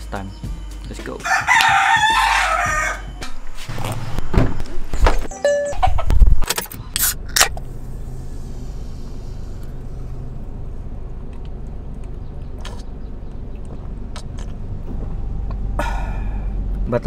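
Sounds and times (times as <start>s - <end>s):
car engine idling: 6.8s - 17.0s.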